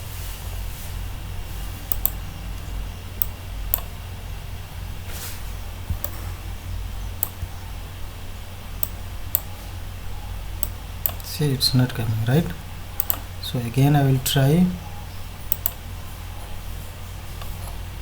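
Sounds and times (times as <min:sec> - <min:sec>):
steady low hum: 0:00.0 - 0:18.0
computer mouse clicks: 0:01.9 - 0:03.9, 0:05.9 - 0:06.2, 0:08.8 - 0:09.5, 0:10.6 - 0:11.3, 0:13.0 - 0:13.3, 0:15.5 - 0:15.8.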